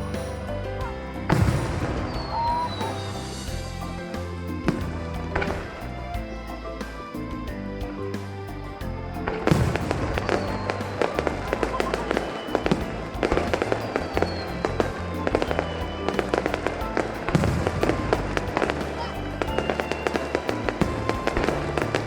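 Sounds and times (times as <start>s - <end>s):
show music: 0.0s - 22.0s
fireworks bursting and crackling: 1.2s - 5.8s, 9.5s - 22.0s.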